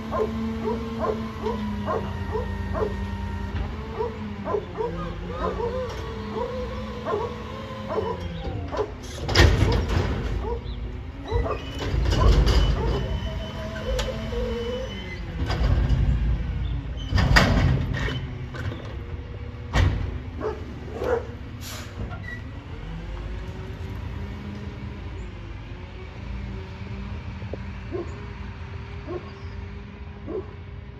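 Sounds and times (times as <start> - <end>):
hydraulic system whining: 0.0 - 23.3
truck engine running: 0.0 - 30.9.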